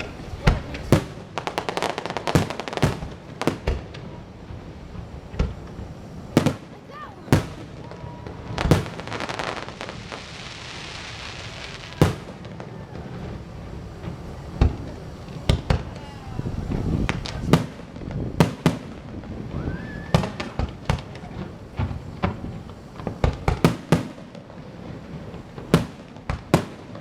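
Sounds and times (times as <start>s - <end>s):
fireworks banging: 0.0s - 27.0s
fireworks crackling fizz: 0.0s - 27.0s.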